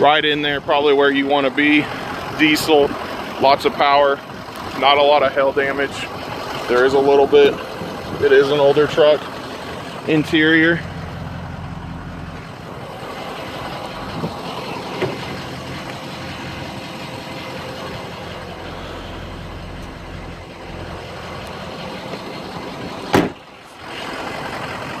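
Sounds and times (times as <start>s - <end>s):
diesel engine idling: 0.0s - 25.0s
sharp knock: 23.1s - 23.4s.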